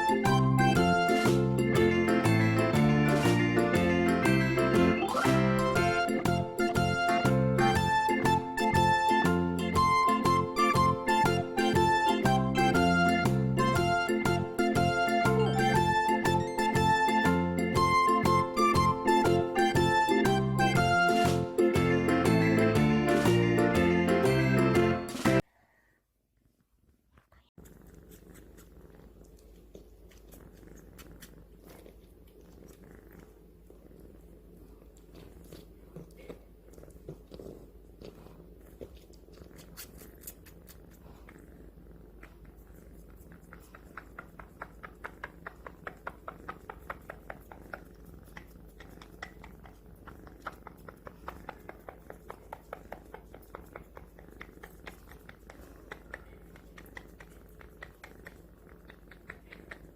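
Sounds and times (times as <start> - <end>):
kitten purring: 0.0 - 24.0, 26.4 - 59.9
kitten wet sucking smacks: 27.6 - 32.8, 34.9 - 41.4, 42.1 - 59.9.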